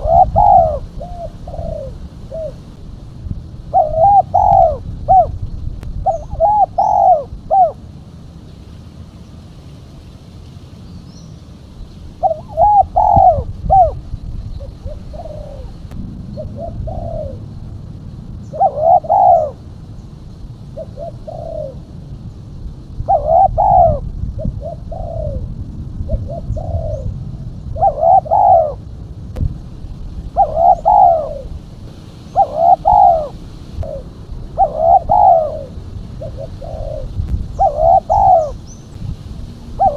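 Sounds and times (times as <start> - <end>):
dove cooing: 0.0 - 2.8, 3.5 - 5.4, 6.0 - 7.9, 12.2 - 17.7, 18.4 - 22.1, 22.9 - 28.9, 30.2 - 39.9
low background rumble: 0.0 - 39.9.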